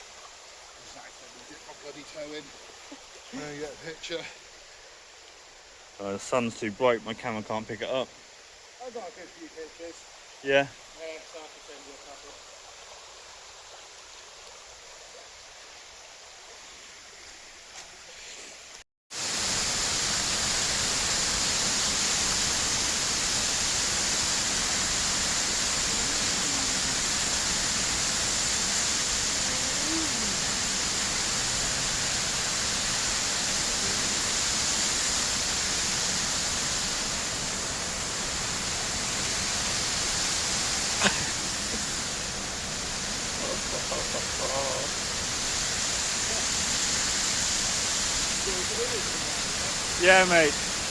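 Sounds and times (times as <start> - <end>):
waterfall roaring: 19.2 - 50.9.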